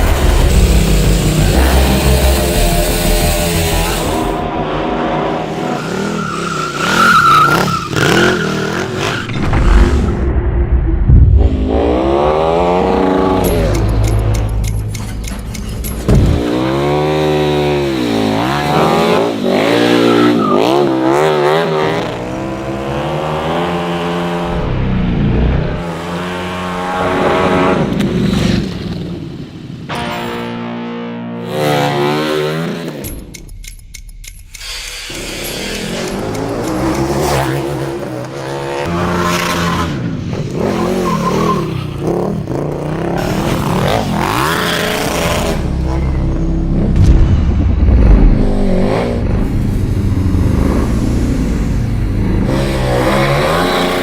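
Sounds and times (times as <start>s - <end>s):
motorcycle engine revving: 0.0s - 9.4s, 11.3s - 29.2s, 34.9s - 54.0s
sharp engine bang: 9.3s - 13.4s, 46.8s - 50.3s.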